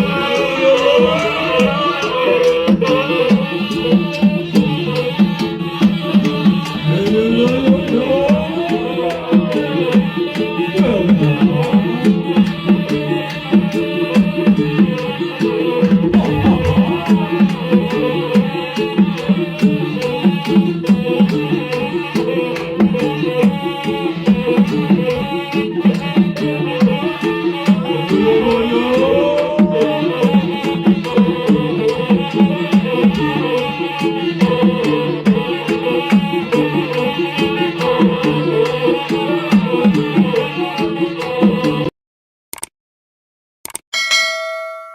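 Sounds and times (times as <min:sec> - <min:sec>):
tuned drums rapid patterns: 0:13.7 - 0:19.6
oboe melody: 0:15.8 - 0:18.0
tuned drums playing: 0:15.8 - 0:18.2
sharp metallic strikes: 0:15.9 - 0:18.0.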